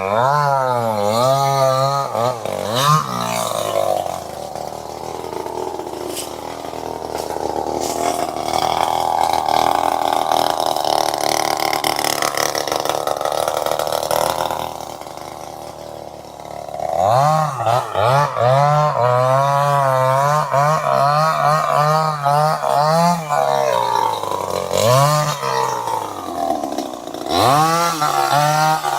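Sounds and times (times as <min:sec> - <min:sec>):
chainsaw engine running: 0:00.0 - 0:28.9.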